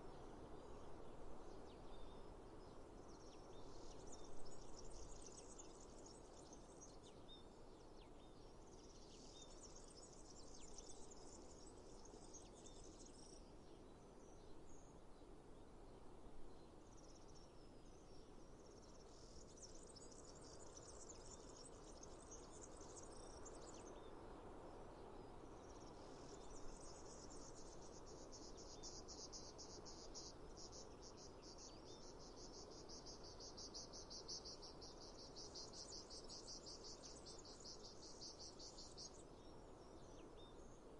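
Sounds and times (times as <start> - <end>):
soft steady hiss: 0.0 - 40.9
insects chirping: 25.7 - 39.2.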